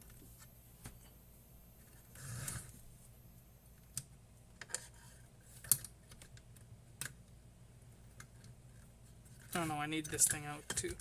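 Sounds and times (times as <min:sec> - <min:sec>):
small parts clicking and tapping: 0:08.1 - 0:11.0.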